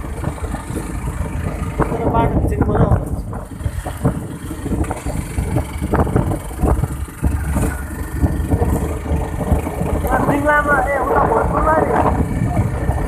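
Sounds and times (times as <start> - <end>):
motorcycle engine rumbling: 0.0 - 13.0
road and wind noise: 0.0 - 13.0.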